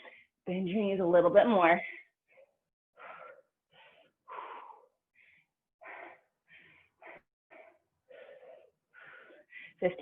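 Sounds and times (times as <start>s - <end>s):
person breathing hard: 1.9s - 9.8s.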